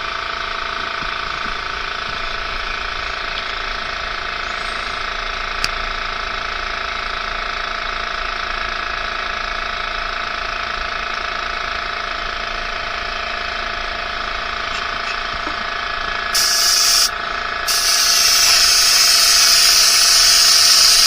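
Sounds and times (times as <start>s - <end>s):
small motor whining: 12.8s - 21.0s
hiss: 16.3s - 17.1s, 17.7s - 21.0s.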